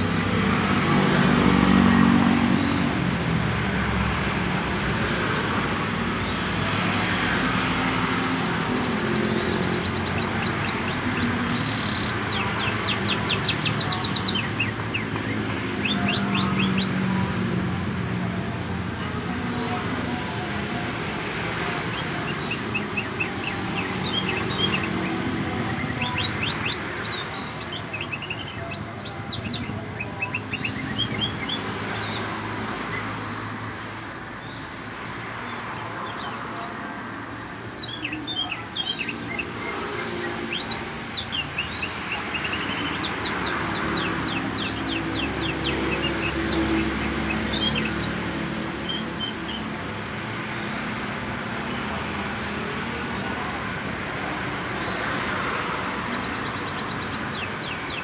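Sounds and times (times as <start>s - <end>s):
canary chirping and trilling: 36.9s - 49.6s.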